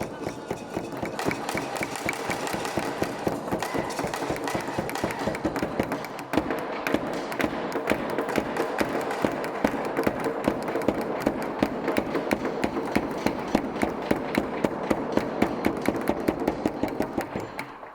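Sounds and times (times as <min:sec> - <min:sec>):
continuous background noise: 0:00.0 - 0:17.9
fast percussion beat of sharp taps: 0:00.0 - 0:17.9.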